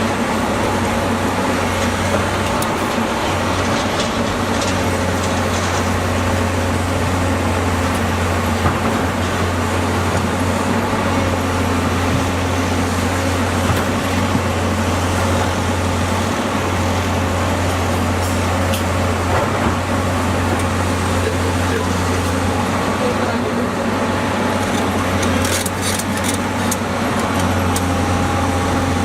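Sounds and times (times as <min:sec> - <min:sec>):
diesel engine droning: 0:00.0 - 0:29.0.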